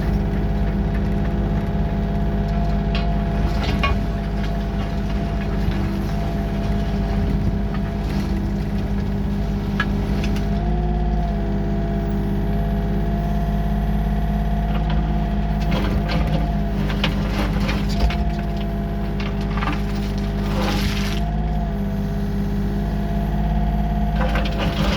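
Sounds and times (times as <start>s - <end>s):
clanks and rattles: 0.0s - 10.8s, 14.6s - 21.4s
diesel engine running: 0.0s - 24.9s.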